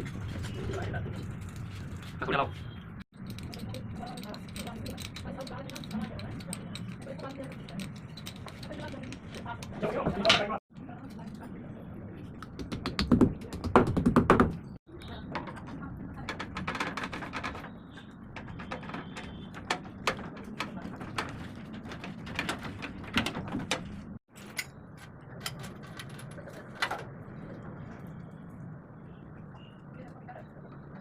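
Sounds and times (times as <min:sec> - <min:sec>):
tools and metal fittings clattering: 0:03.2 - 0:10.5, 0:16.6 - 0:27.1.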